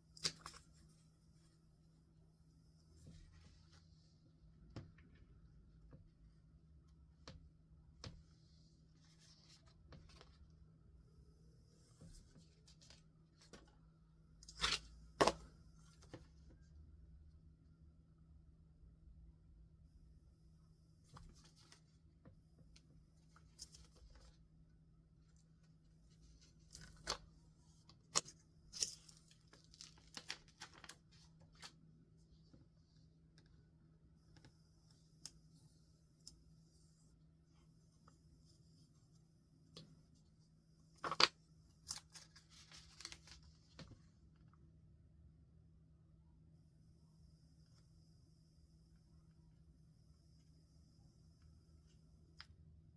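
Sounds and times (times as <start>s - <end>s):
faint steady hum: 0.0s - 52.9s
crisp paper sounds: 41.0s - 43.8s
paper rustling: 41.0s - 44.0s.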